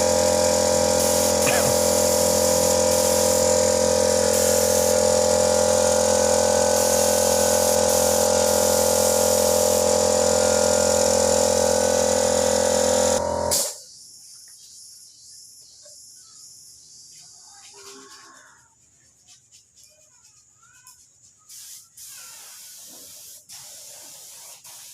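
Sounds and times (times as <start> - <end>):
air compressor running: 0.0 - 13.8.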